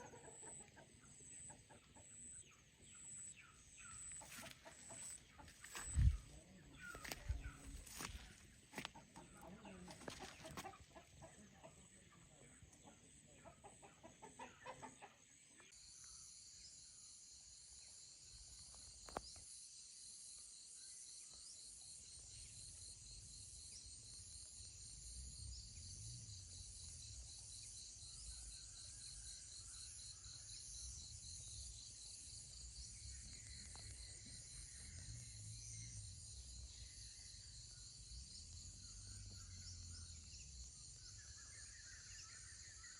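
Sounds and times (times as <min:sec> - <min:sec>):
chicken clucking: 0:00.0 - 0:02.3, 0:04.1 - 0:15.3
insect chorus: 0:02.3 - 0:12.5, 0:15.7 - 0:42.9.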